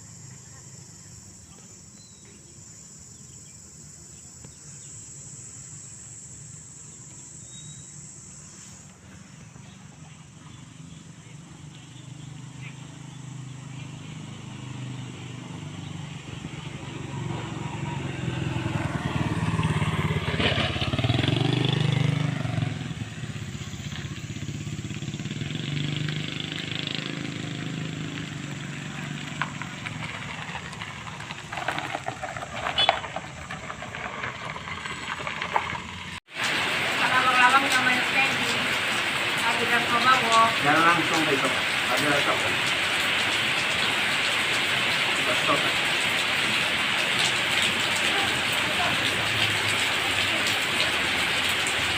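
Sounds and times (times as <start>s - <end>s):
motorcycle engine running: 5.2s - 36.3s.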